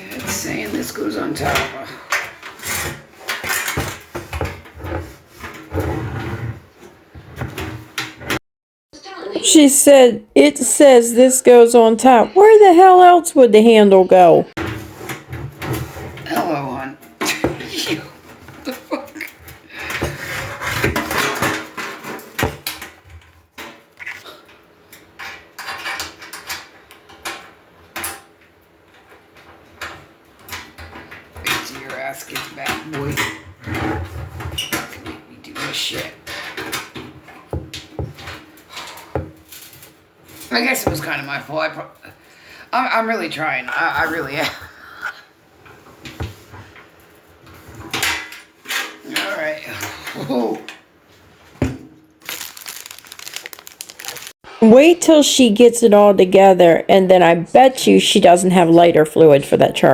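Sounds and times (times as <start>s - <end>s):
grill parts knocking and rattling: 0.1s - 5.7s, 25.0s - 35.2s.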